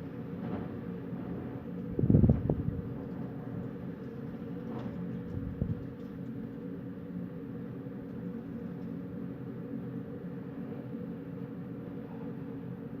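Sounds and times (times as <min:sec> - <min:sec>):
wind rumbling on microphone: 0:00.4 - 0:03.6, 0:04.6 - 0:06.3.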